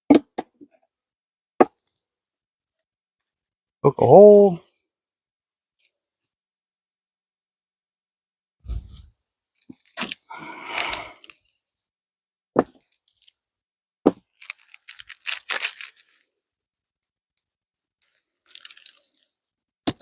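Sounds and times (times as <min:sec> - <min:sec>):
packaging tearing and crinkling: 0:09.8 - 0:10.2, 0:14.2 - 0:16.3, 0:18.0 - 0:19.3.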